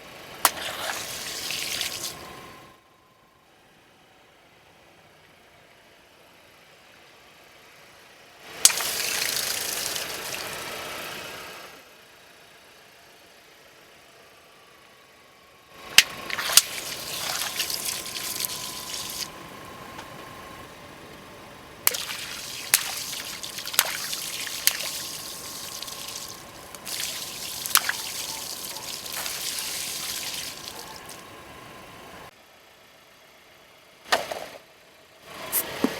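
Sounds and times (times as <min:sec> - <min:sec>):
liquid spraying and splashing: 0:00.5 - 0:02.4, 0:08.6 - 0:11.0, 0:16.0 - 0:19.3, 0:21.9 - 0:31.2
bottles bursting under tyres: 0:00.5 - 0:02.5, 0:08.6 - 0:10.9, 0:16.0 - 0:19.3, 0:21.8 - 0:31.3.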